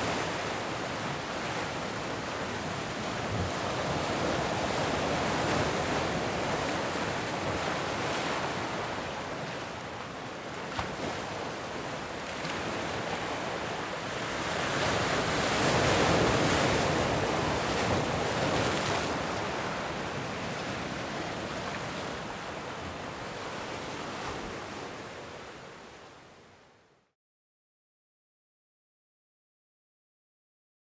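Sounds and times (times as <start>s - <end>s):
waves breaking: 14.6s - 26.0s.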